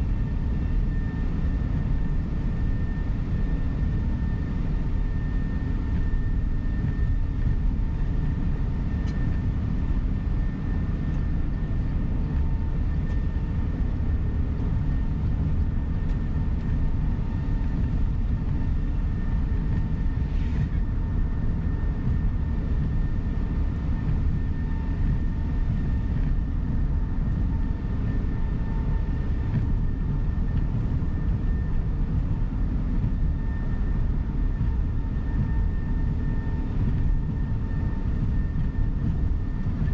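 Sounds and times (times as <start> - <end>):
bus engine and road rumble: 0.0 - 39.9
faint whine: 0.0 - 39.9.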